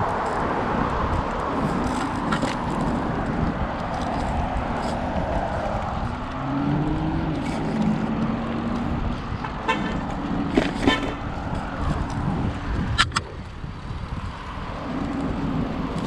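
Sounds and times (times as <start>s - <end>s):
road traffic noise: 0.0s - 16.0s
car horn tooting: 9.6s - 10.1s, 10.7s - 11.3s.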